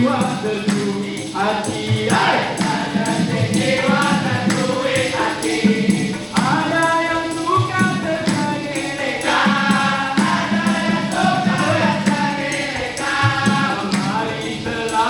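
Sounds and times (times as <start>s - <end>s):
steady percussion beat: 0.0s - 15.0s
vocal group singing in harmony: 0.0s - 15.0s.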